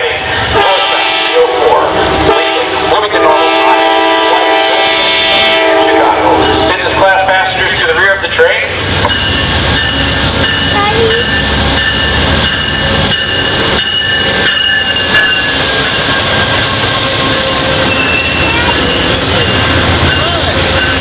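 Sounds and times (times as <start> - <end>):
train rumbling: 0.0 - 21.0
high-pitched brake squeal: 17.8 - 20.4.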